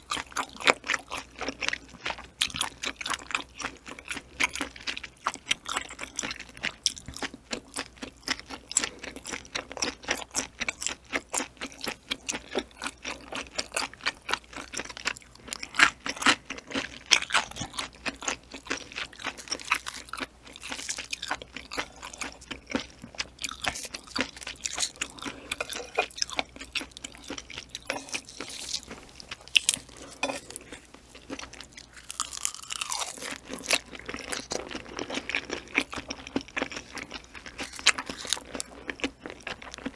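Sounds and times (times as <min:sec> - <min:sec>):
chewing with wet crunches: 0:00.0 - 0:39.9.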